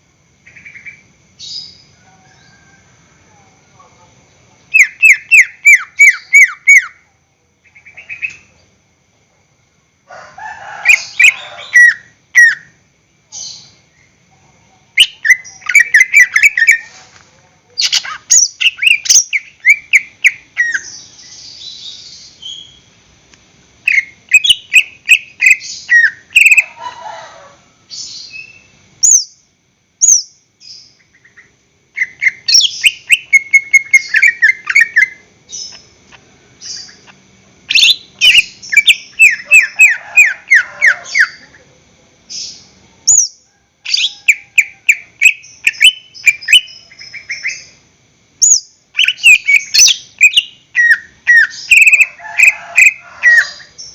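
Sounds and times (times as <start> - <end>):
bird singing rapid chirps and trills: 4.7 - 7.0, 14.8 - 16.9, 17.8 - 22.9, 23.8 - 26.7, 30.0 - 41.4, 42.3 - 47.8, 48.4 - 53.9.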